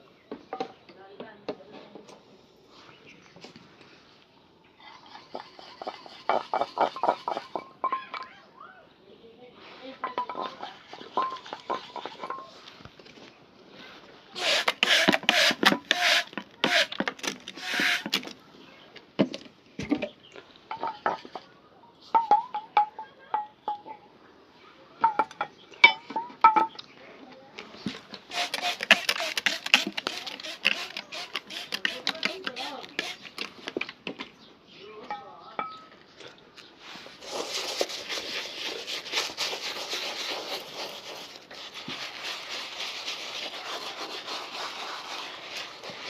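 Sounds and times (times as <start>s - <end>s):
polish tins clinking: 5.0s - 8.3s, 10.0s - 12.8s
brush strokes on leather: 36.8s - 46.0s.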